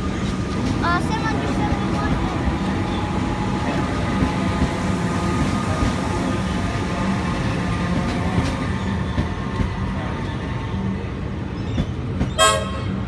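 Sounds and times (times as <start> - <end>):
train low hum: 0.0 - 13.0
train whine: 0.0 - 13.0
high-pitched train toot: 12.4 - 13.0.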